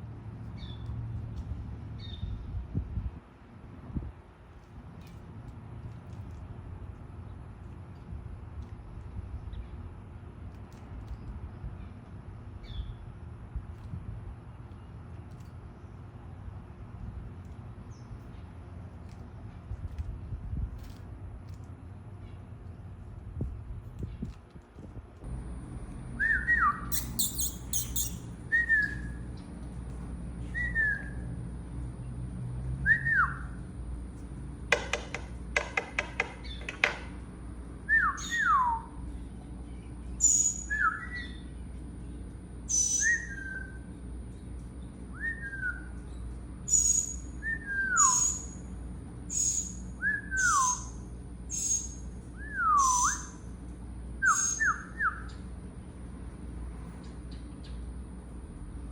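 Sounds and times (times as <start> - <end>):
songbird whistling: 26.2 - 29.2, 30.4 - 31.3, 32.8 - 33.6, 37.8 - 39.0, 40.1 - 41.4, 42.7 - 43.8, 45.1 - 46.0, 46.7 - 48.6, 49.3 - 53.4, 54.2 - 55.4
bird chips: 26.2 - 30.8, 51.5 - 53.4.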